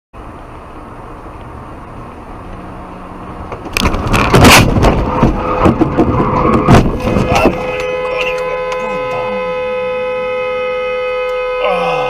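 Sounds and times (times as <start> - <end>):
road and vehicle noise: 0.1 - 12.0
car crash impacts and crunching: 3.6 - 7.8.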